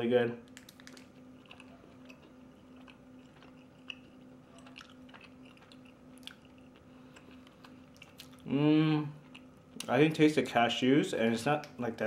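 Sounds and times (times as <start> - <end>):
low steady hum: 0.0 - 12.0
person chewing: 0.5 - 9.9.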